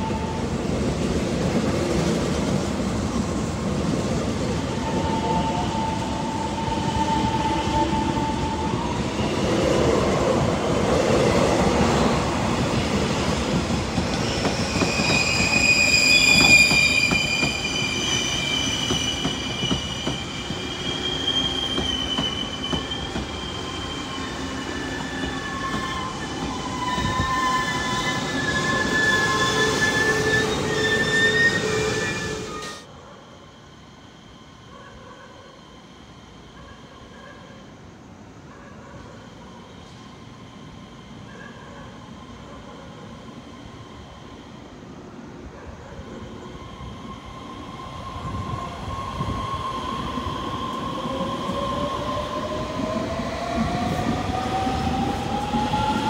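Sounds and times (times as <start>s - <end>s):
train arriving: 0.0s - 56.0s
train rumbling and whining: 0.0s - 56.0s
shrill wheel squeal: 4.7s - 9.8s, 14.1s - 32.8s.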